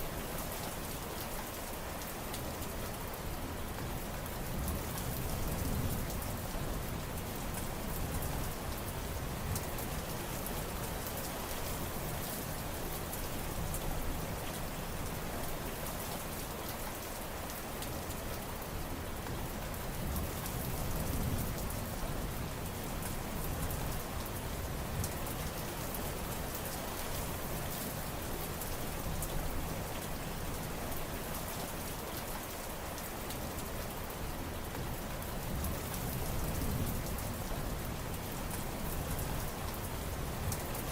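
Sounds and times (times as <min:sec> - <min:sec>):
rain falling: 0:00.0 - 0:40.9.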